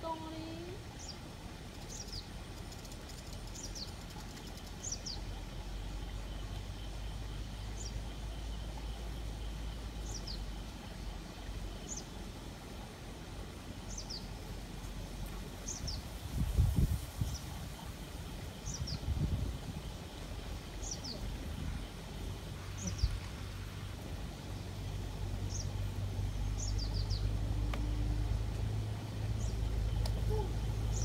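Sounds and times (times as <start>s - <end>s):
low outdoor rumble: 0.0s - 31.0s
bird calling with falling notes: 30.0s - 31.0s.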